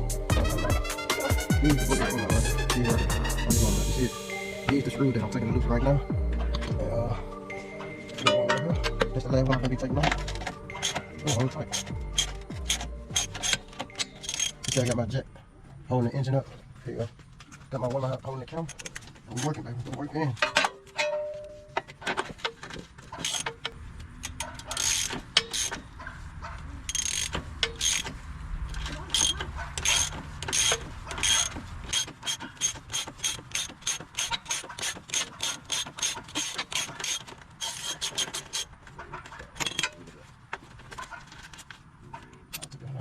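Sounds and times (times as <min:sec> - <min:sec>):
ratchet wrench clicking: 0:10.0 - 0:15.0, 0:23.2 - 0:25.8, 0:26.9 - 0:38.7.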